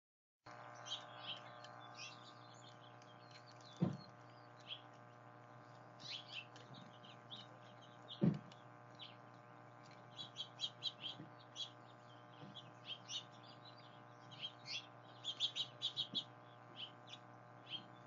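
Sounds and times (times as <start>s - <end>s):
small birds chirping: 0.5s - 18.0s
steady low hum: 0.5s - 18.0s
dull thumps: 3.8s - 4.1s, 8.1s - 8.6s.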